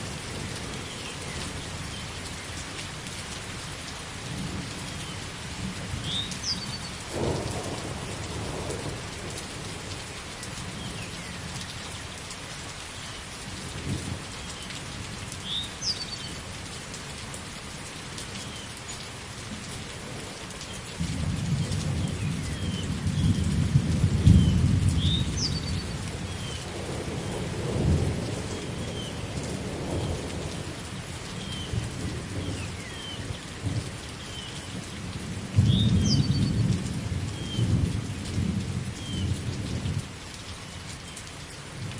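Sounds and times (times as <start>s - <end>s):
steady rain: 0.0s - 41.9s
thunder rumbling: 7.1s - 9.9s.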